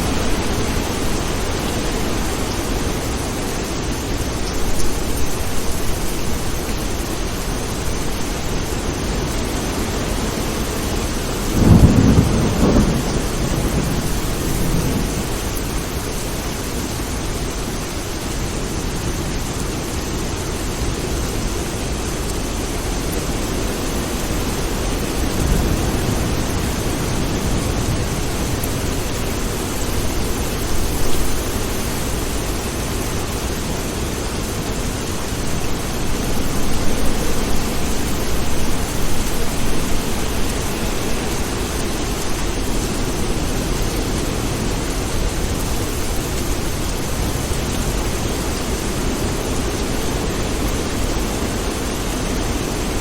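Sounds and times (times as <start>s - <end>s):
steady rain: 0.0s - 53.0s
distant thunder rumbling: 11.4s - 16.3s, 24.9s - 31.8s, 34.9s - 43.8s.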